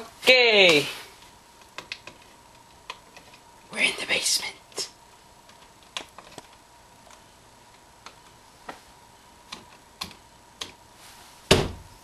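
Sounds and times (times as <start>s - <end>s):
loud thump: 11.5s - 11.9s.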